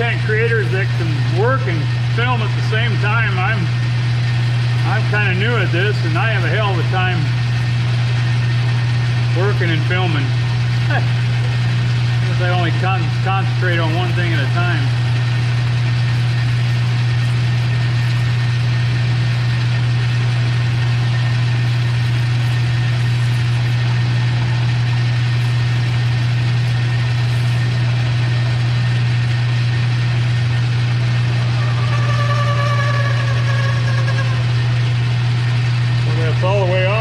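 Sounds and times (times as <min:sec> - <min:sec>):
faint cutting whine: 0:00.0 - 0:37.0
metal lathe humming: 0:00.0 - 0:37.0.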